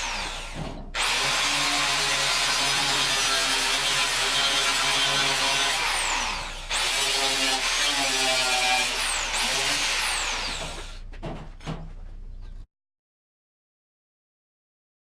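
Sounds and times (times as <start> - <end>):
power tool running under load: 0.0 - 11.0.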